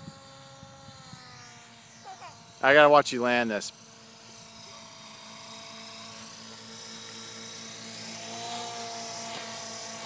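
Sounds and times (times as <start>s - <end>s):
model helicopter buzzing whine: 0.0s - 10.0s.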